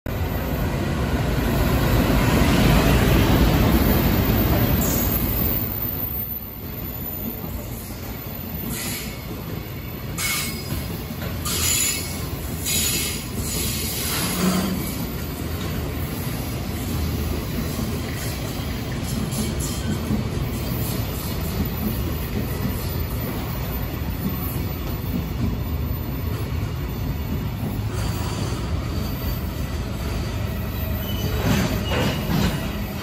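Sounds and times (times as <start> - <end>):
electric locomotive passing: 0.1 - 33.0
high-pitched wheel squeals: 30.8 - 32.6.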